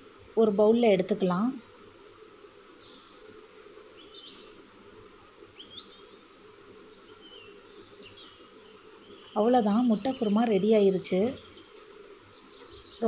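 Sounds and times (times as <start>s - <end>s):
low steady background noise: 0.0s - 13.0s
faint bird chirps: 0.3s - 13.0s.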